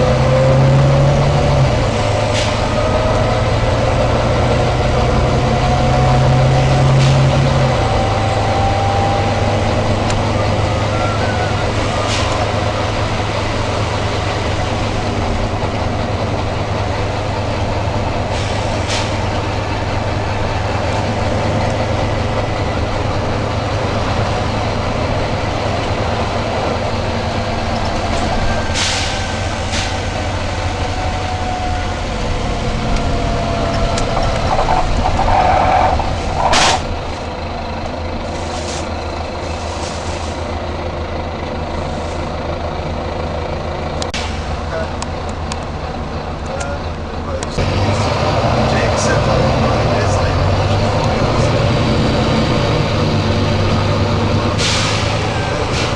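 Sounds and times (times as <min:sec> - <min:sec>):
bus diesel engine running: 0:00.0 - 0:55.9
air-brake hiss: 0:18.3 - 0:19.4, 0:28.7 - 0:30.2, 0:38.3 - 0:40.5, 0:54.6 - 0:55.9.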